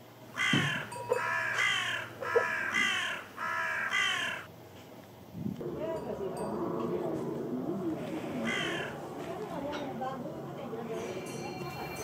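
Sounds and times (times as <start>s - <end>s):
bird cawing: 0.4s - 4.5s, 8.1s - 9.8s.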